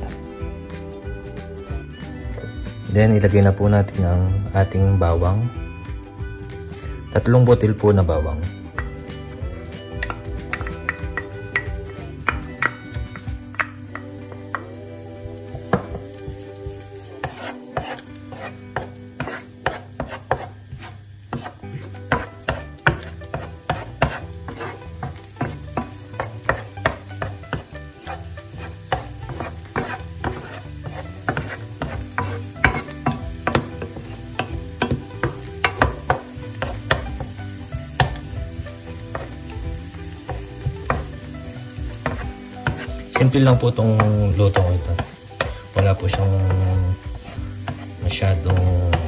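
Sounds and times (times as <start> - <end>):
garlic sizzling in oil: 0.0 - 49.0
wooden spoon scraping a pan: 15.5 - 49.0.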